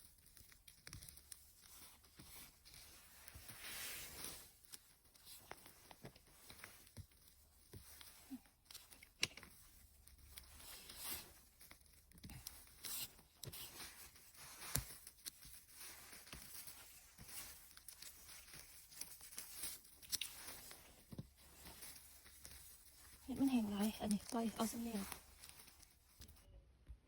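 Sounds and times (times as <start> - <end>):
rustling and crackling forest litter: 10.4 - 26.4.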